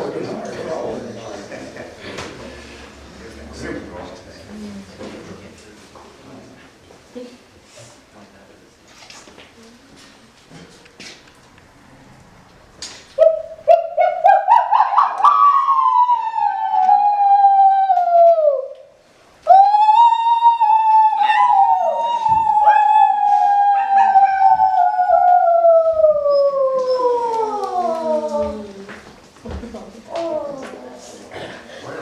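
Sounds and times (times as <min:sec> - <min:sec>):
wailing pitched tone: 0:13.2 - 0:18.8, 0:19.5 - 0:28.7.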